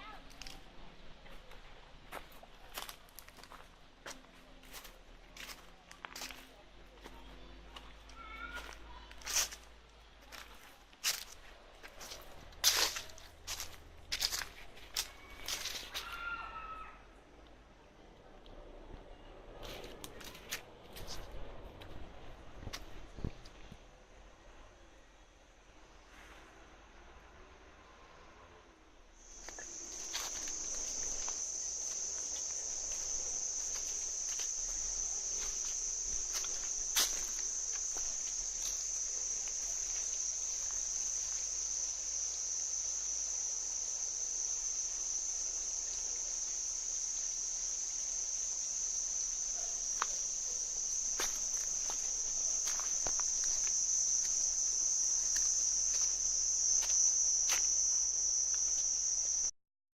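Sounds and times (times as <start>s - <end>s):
insects droning: 0.0s - 18.4s, 19.1s - 59.5s.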